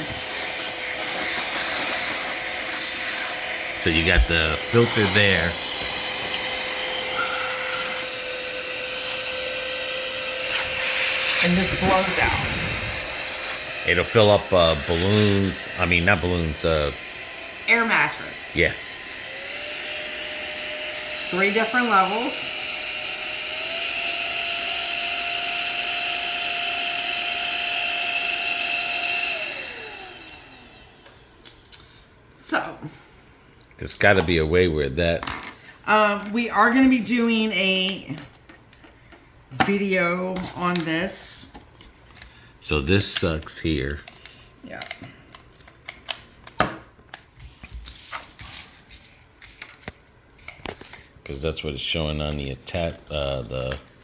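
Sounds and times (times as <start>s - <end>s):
motor winding down: 0.0s - 31.1s
electric air duster whining: 0.0s - 31.4s.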